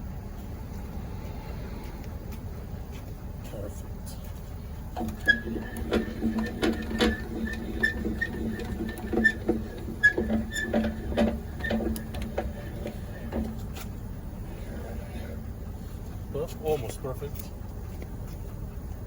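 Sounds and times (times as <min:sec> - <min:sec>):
truck idling: 0:00.0 - 0:19.0
hand-cranked jack clicking and whining: 0:04.9 - 0:15.8.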